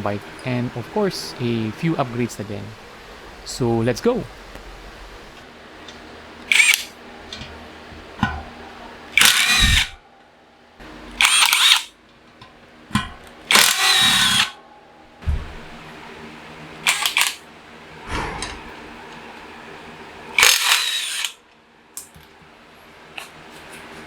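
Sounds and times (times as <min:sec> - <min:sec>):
power drill whirring: 0:06.5 - 0:06.9, 0:09.2 - 0:10.0, 0:11.2 - 0:11.9, 0:13.5 - 0:14.5, 0:20.4 - 0:21.3.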